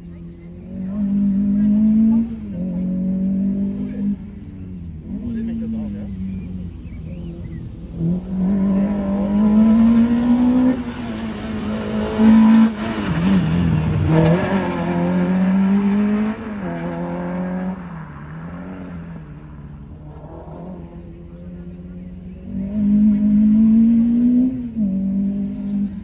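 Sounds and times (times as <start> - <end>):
car engine revving hard: 7.2 - 26.0.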